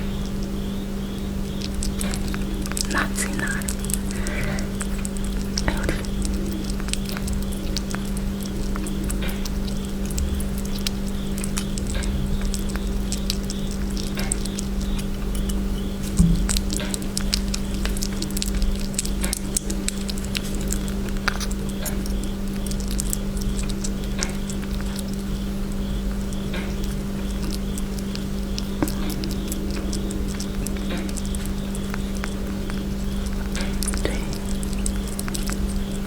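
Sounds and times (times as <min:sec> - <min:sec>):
small animal chewing clicks: 0:00.0 - 0:36.0
steady low hum: 0:00.0 - 0:36.0
knock: 0:16.2 - 0:16.5.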